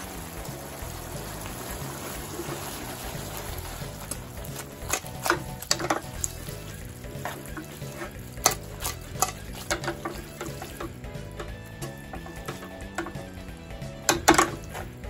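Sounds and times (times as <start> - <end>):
sauce sizzling: 0.0 - 15.0
metal tongs clicking on frying pan: 4.8 - 6.4, 8.4 - 13.2, 14.1 - 14.8.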